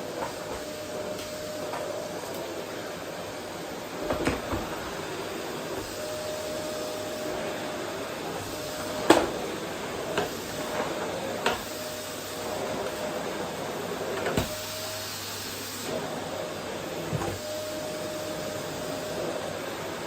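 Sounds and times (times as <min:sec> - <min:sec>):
vacuum cleaner humming: 0:00.0 - 0:20.0.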